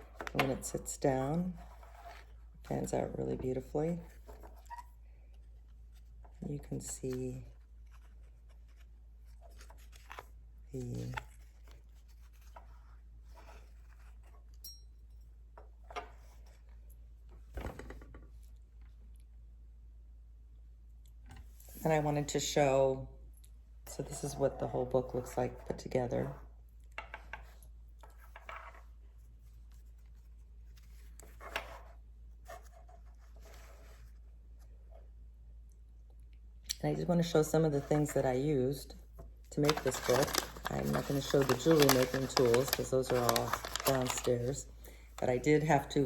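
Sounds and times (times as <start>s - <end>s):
soft rustles of book handling: 0.0s - 19.5s, 23.2s - 46.0s
low steady hum: 0.0s - 46.0s
light metal ring: 14.6s - 15.1s.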